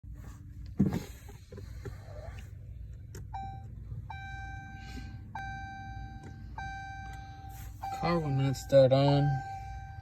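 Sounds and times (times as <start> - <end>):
car warning chime: 3.3 - 10.0.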